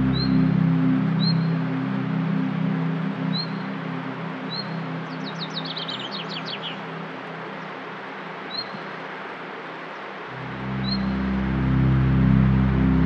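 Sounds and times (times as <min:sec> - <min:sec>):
ambient music chords: 0:00.0 - 0:07.4, 0:10.3 - 0:13.0
songbird singing: 0:00.0 - 0:09.0, 0:09.8 - 0:13.0
outdoor background hiss: 0:00.0 - 0:13.0.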